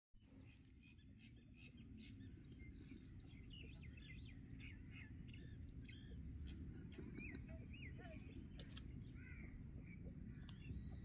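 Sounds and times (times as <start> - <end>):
low outdoor rumble: 0.2 - 11.0
small birds chirping: 0.2 - 11.0.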